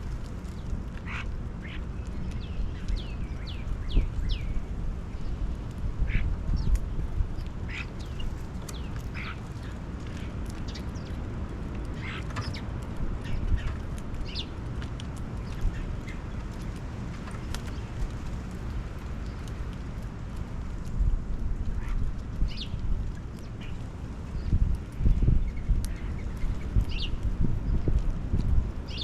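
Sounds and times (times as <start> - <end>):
steady low rumble: 0.0 - 29.0
birds giving harsh calls: 7.7 - 9.8.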